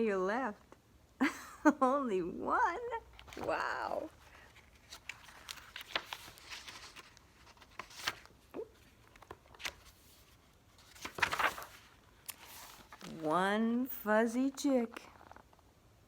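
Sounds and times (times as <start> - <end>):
book pages rustling: 3.0 - 13.6, 14.3 - 15.7.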